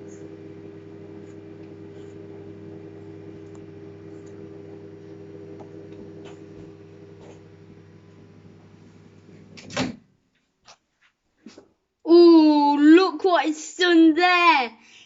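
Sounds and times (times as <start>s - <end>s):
microwave oven humming: 0.0s - 10.1s.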